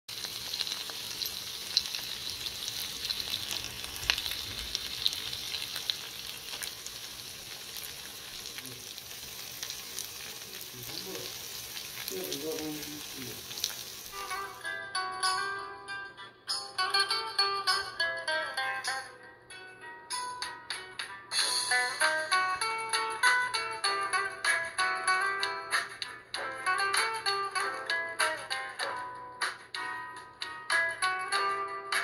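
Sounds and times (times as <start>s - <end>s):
chicken sizzling in hot oil: 0.1s - 14.6s
oil crackling and popping: 0.1s - 14.6s.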